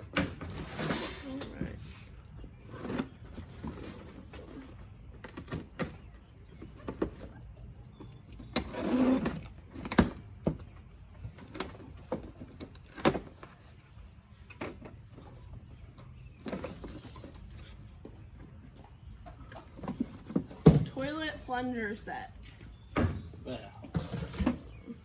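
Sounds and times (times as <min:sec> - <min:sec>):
cardboard boxes knocking and thudding: 0:19.8 - 0:20.9.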